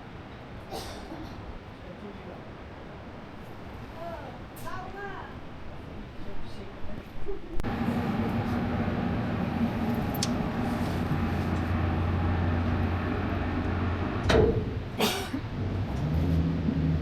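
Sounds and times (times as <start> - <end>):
motor engine humming: 7.6 - 17.0.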